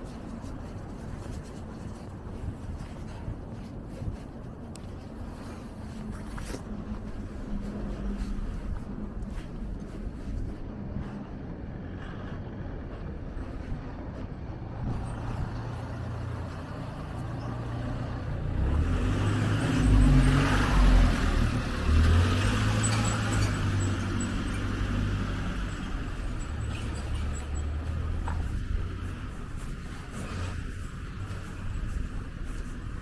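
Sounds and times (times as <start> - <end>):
steady traffic hum: 0.0 - 33.0
vehicle passing close by: 14.5 - 33.0.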